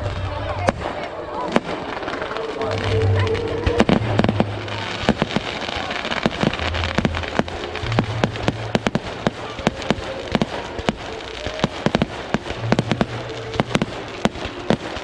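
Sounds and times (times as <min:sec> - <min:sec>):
fireworks bangs and pops: 0:00.0 - 0:15.0
fireworks crackle: 0:00.0 - 0:15.0.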